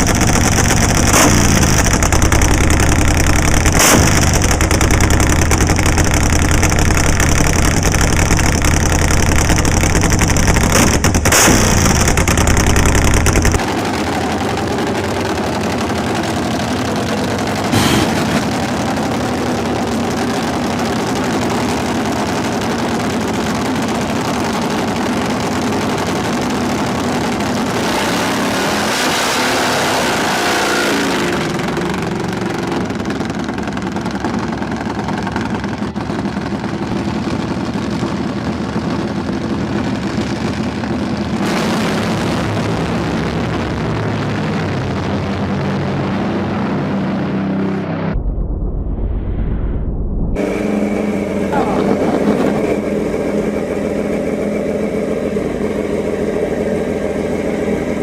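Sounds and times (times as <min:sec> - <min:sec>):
motorcycle engine running: 0:00.0 - 0:48.2, 0:50.4 - 0:58.0
rushing noise: 0:47.4 - 0:54.0.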